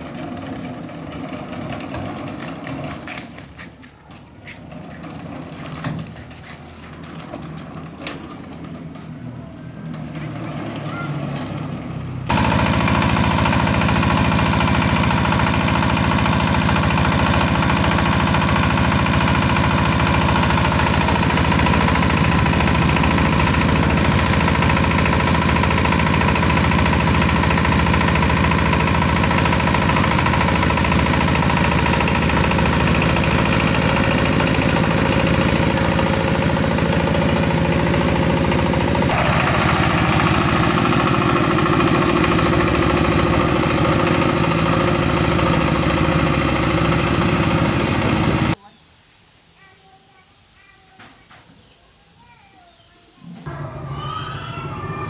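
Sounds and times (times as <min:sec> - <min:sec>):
threshing machine engine running: 0:10.6 - 0:48.6.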